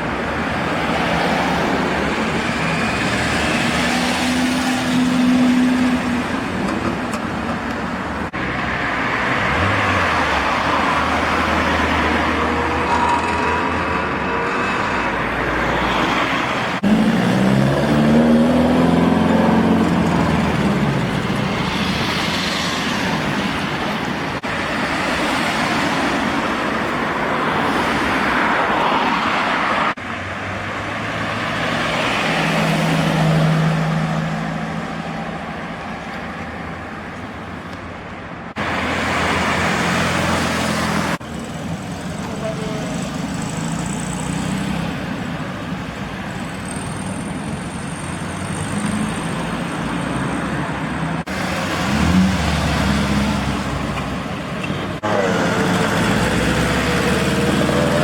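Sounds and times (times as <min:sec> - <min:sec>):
car engines revving: 0:00.0 - 0:36.8, 0:38.5 - 0:58.0.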